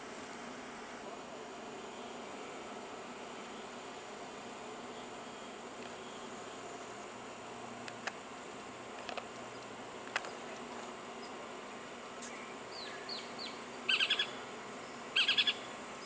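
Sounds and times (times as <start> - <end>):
faint hiss: 0.0 - 16.0
small bird chirping: 12.2 - 15.7.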